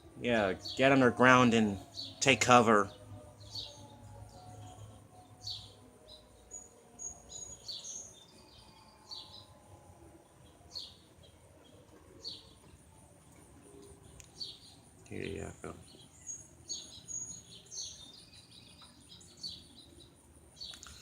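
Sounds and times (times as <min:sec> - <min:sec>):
distant warning siren: 0:00.0 - 0:15.9
songbird chirping: 0:00.0 - 0:21.0.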